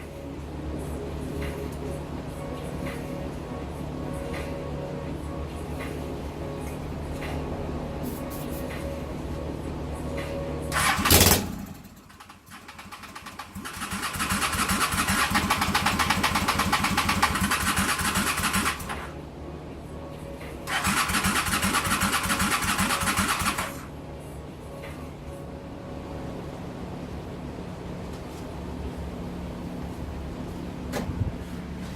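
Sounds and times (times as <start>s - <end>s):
motorcycle starter cranking: 10.7s - 19.1s, 20.7s - 23.9s.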